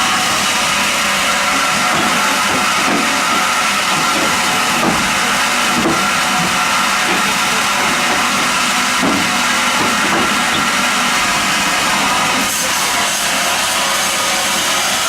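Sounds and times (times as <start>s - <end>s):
band sawmill running with whine: 0.0s - 15.0s.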